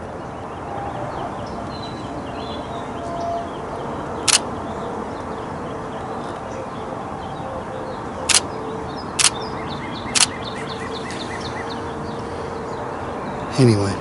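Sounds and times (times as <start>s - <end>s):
camera shutter clicks: 8.3s - 8.5s, 10.2s - 10.4s
small bird chirping: 9.2s - 11.7s.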